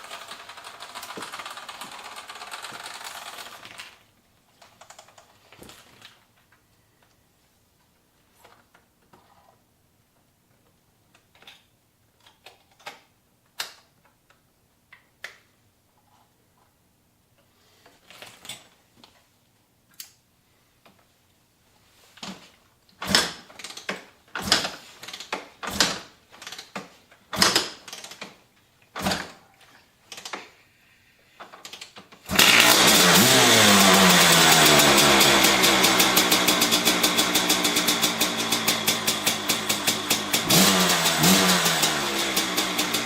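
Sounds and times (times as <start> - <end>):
motorcycle engine firing: 32.3 - 43.0.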